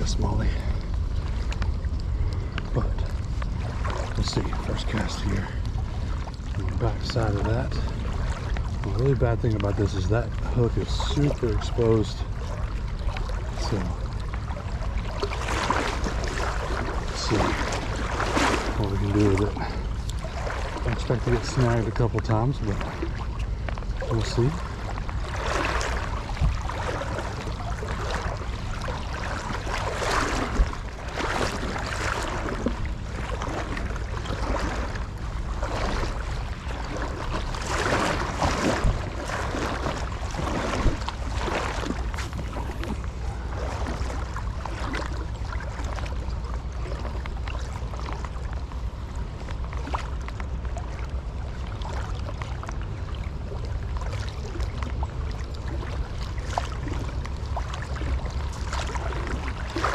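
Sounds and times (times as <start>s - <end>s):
creek water rushing: 0.0s - 1.4s, 2.7s - 23.4s, 37.6s - 44.2s
wind rumble on microphone: 0.0s - 59.9s.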